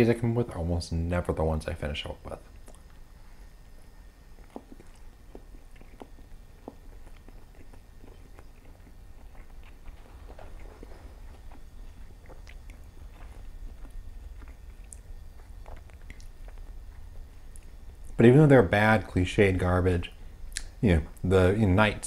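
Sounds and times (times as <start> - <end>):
person chewing food: 2.5 - 18.2.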